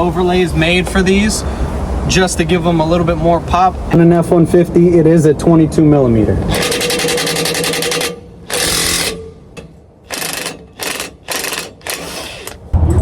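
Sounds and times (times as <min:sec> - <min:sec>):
impact wrench hammering bolt: 0:06.5 - 0:12.6.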